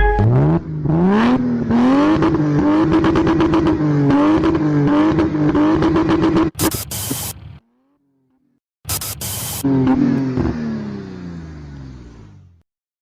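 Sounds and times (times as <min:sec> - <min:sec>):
car engine revving: 0:00.2 - 0:12.6.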